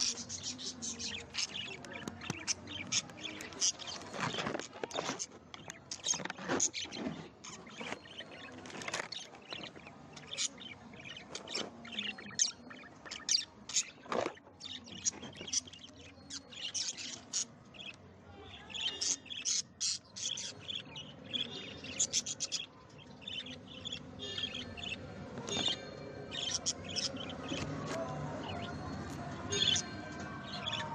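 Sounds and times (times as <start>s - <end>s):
budgerigars chirping: 0.0s - 4.6s, 18.6s - 27.7s.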